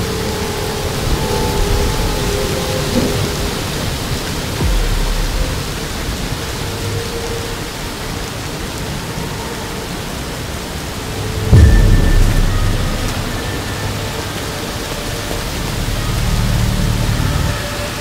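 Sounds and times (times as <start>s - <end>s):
heavy rain pouring: 0.0s - 18.0s
low rumble of thunder: 0.9s - 8.0s, 11.0s - 17.6s
loud thunderclap: 4.6s - 6.8s, 11.0s - 16.2s.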